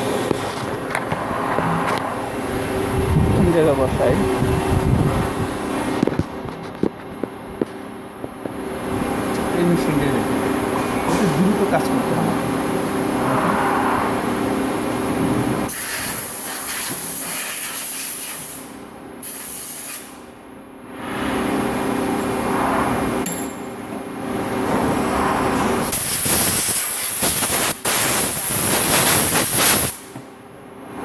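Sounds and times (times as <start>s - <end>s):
machines humming: 0.0s - 15.7s
high-pressure spray hissing: 15.7s - 20.1s, 25.9s - 30.1s.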